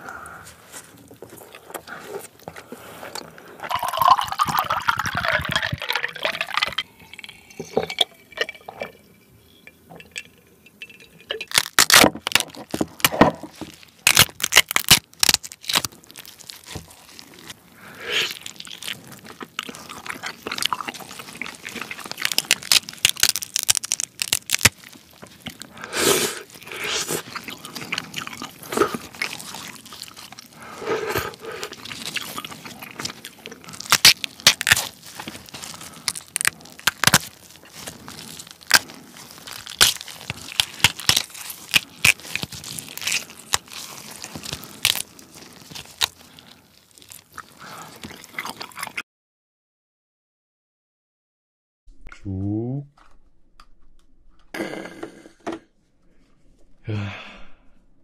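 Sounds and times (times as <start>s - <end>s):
chewing: 0.0s - 9.0s, 9.6s - 49.0s
crab shell crackling and snapping: 10.0s - 49.0s.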